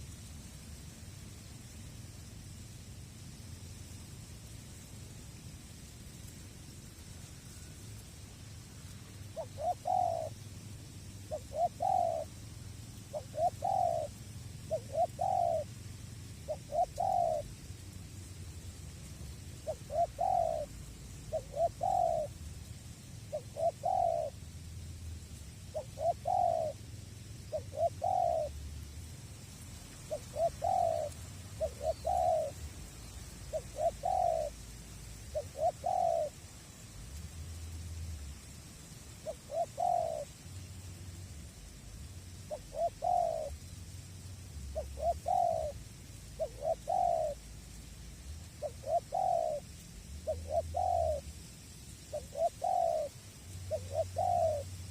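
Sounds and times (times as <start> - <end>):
dove cooing: 8.7 - 29.0, 29.8 - 38.4, 39.2 - 40.4, 42.2 - 43.8, 44.6 - 51.4, 52.0 - 54.9.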